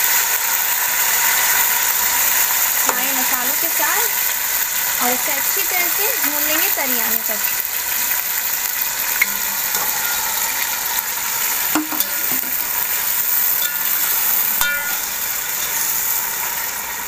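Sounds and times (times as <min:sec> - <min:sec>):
chicken sizzling in hot oil: 0:00.0 - 0:17.0
spoon clinking against pot: 0:11.8 - 0:12.6, 0:13.6 - 0:15.1.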